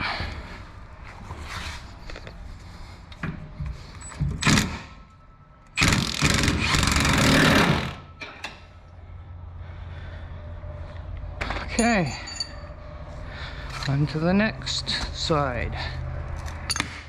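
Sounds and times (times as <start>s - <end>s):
impact wrench running: 5.8s - 8.0s.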